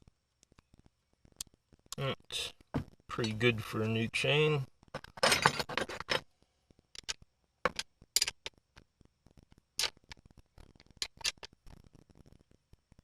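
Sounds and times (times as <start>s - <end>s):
metal clicks and scrapes: 5.0s - 6.2s, 6.9s - 8.6s, 9.8s - 11.6s.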